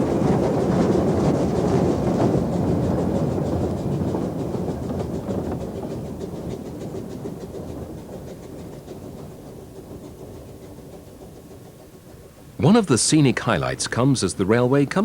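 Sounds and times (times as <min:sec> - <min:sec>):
steam train running past: 0:00.0 - 0:15.0.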